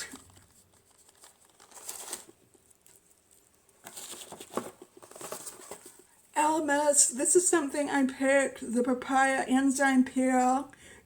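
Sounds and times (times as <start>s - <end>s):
packaging rustling and crinkling: 0.0s - 6.2s.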